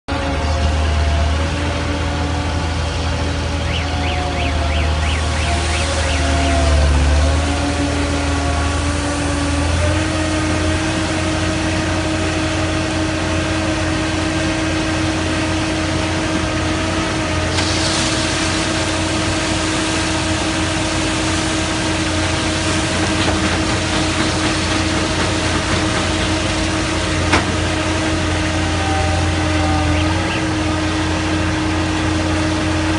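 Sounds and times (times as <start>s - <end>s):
concrete mixer engine running: 0.1s - 32.9s
hiss: 17.4s - 27.8s.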